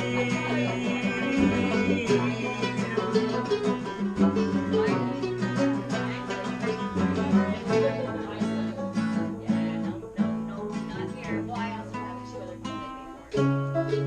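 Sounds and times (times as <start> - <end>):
bluegrass string band playing: 0.0 - 14.0.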